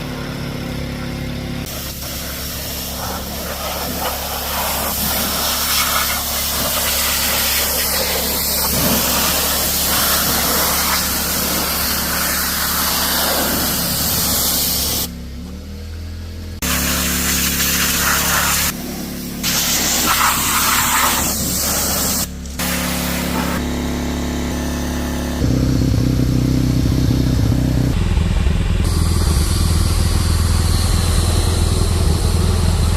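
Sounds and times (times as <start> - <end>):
small engine running: 0.0 - 32.9
pressure washer spraying: 1.7 - 15.1, 16.6 - 23.6.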